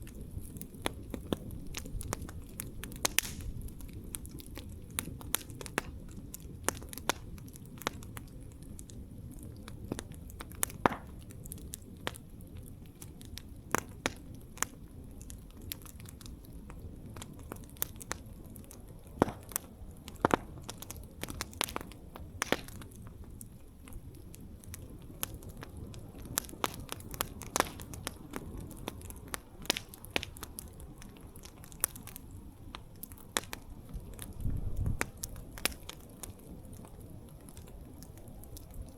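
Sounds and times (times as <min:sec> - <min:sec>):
campfire flames rushing: 0:00.0 - 0:38.9
wood popping and snapping: 0:00.8 - 0:03.5, 0:19.2 - 0:22.9, 0:26.3 - 0:30.6.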